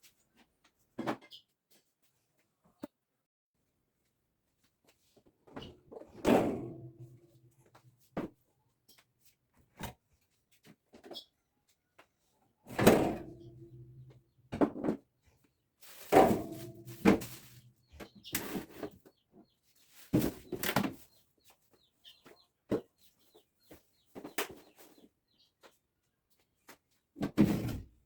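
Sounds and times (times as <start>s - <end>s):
refrigerator shelves and drawers clunking: 5.6s - 7.4s, 12.7s - 15.0s, 15.9s - 17.7s.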